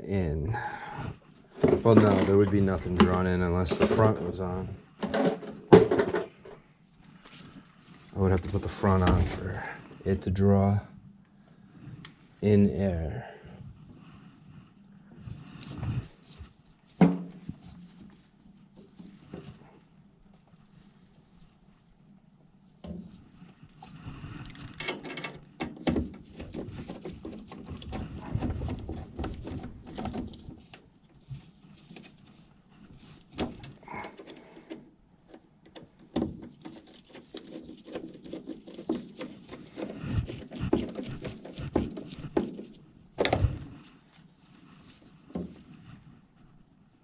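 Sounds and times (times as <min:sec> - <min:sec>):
tools and sheet metal clattering: 0:05.1 - 0:06.4.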